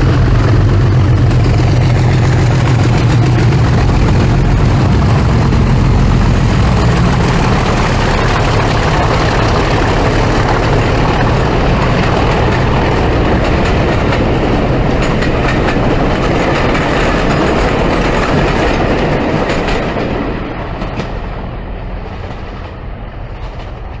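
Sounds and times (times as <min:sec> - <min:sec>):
diesel train engine: 0:00.0 - 0:24.0
rail noise: 0:00.0 - 0:24.0.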